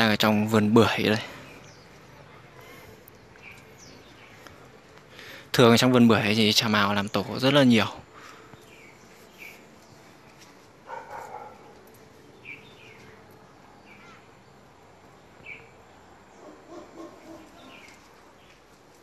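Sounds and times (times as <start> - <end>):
small birds chirping faintly: 0.0 - 19.0
dog barking: 10.8 - 11.8, 16.4 - 17.8.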